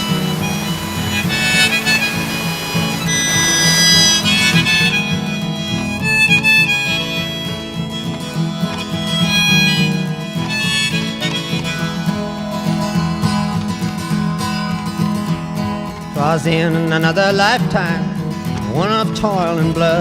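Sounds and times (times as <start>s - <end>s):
acoustic guitar backing: 0.0s - 20.0s
harmonica melody: 0.0s - 20.0s.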